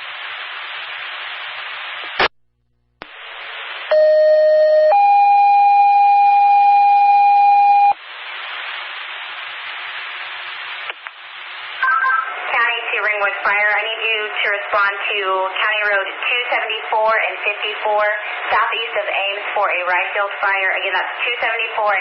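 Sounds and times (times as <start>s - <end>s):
radio static hiss: 0.0s - 2.3s, 3.0s - 4.1s, 7.8s - 22.0s
two-tone radio page: 0.8s - 22.0s.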